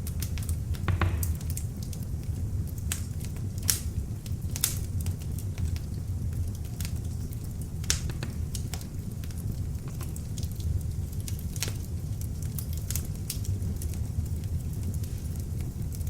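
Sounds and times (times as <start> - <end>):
log fire crackling: 0.0 - 16.0
low rumble of flames: 0.0 - 16.0.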